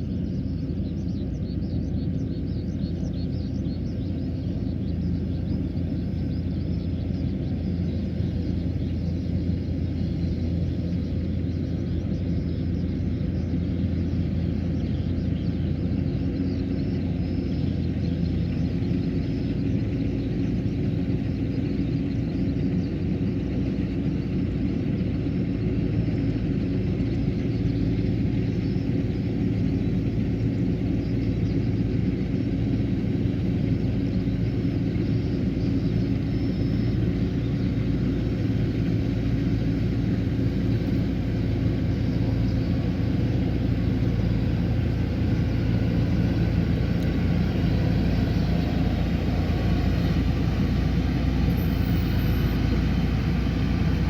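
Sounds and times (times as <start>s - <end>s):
combine harvester engine running: 0.0s - 54.0s
machinery humming: 31.9s - 54.0s.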